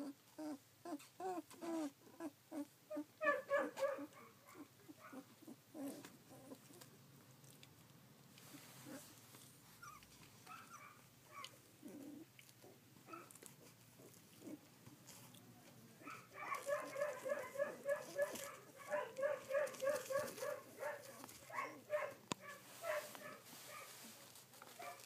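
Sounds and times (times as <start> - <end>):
puppies whimpering: 0.0 - 3.4, 4.6 - 6.8, 9.8 - 13.4.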